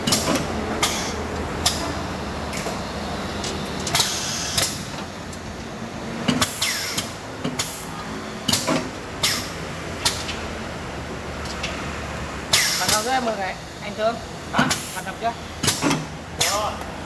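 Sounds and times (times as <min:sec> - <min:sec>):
drilling machine humming: 0:00.0 - 0:17.0
short hissing clatters: 0:02.5 - 0:05.2, 0:08.5 - 0:10.4, 0:12.5 - 0:16.8.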